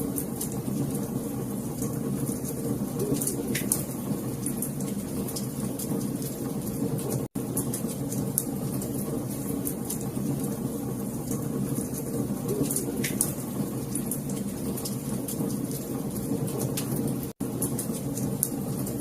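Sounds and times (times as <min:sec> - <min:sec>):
wood fire crackling and popping: 0:00.1 - 0:19.0.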